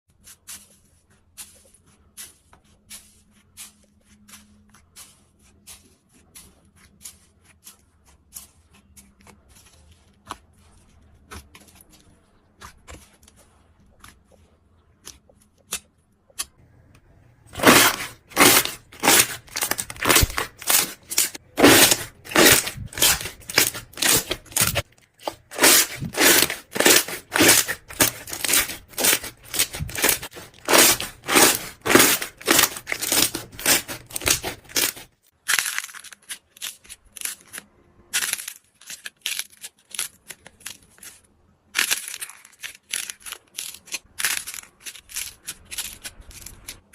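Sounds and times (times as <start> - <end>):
slime squishing by hand: 0.1 - 37.6.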